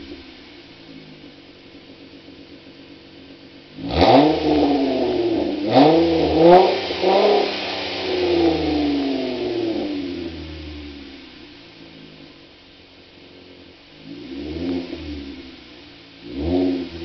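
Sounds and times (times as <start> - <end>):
car exhaust idling and revving: 0.0 - 17.0.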